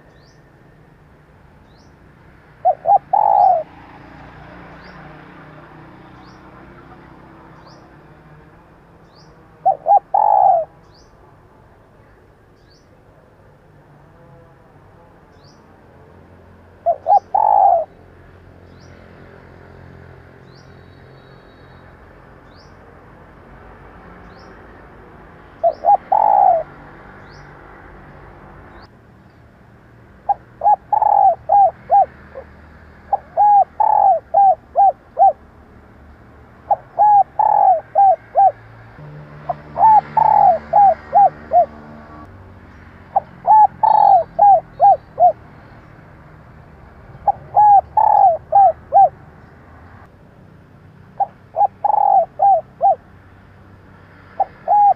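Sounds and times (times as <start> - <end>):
dove cooing: 2.4 - 5.8, 9.5 - 10.8, 16.7 - 18.0, 25.6 - 26.8, 30.3 - 35.4, 36.6 - 38.7, 39.4 - 42.0, 43.1 - 45.4, 47.1 - 49.2, 51.2 - 53.1, 54.4 - 54.9.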